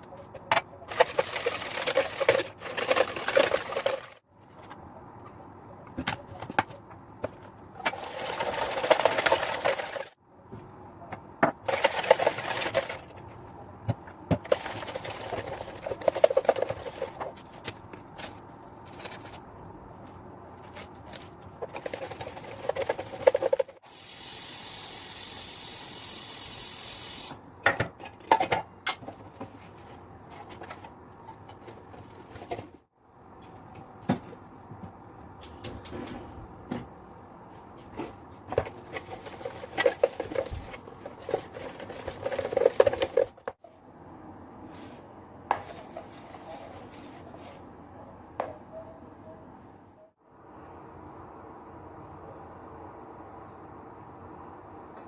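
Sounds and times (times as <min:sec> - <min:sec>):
loud steady hiss: 0:23.8 - 0:27.4
dishes and utensils clinking: 0:28.2 - 0:29.3.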